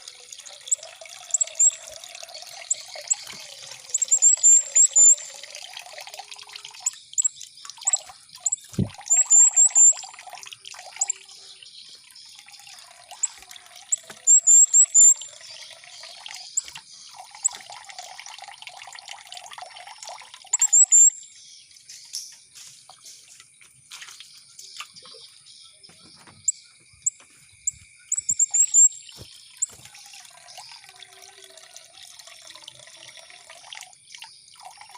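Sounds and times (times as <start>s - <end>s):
water trickling and dripping: 0.0s - 34.9s
bird chirping: 0.4s - 5.5s, 6.6s - 17.8s, 20.5s - 30.9s.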